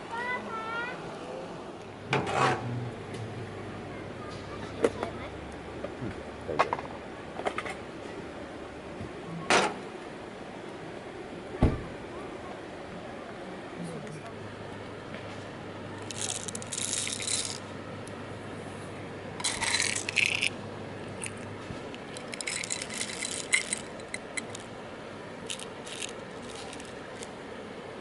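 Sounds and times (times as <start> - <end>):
small hard objects rattling: 16.0 - 17.6, 19.4 - 20.6, 21.2 - 24.7, 25.5 - 27.3.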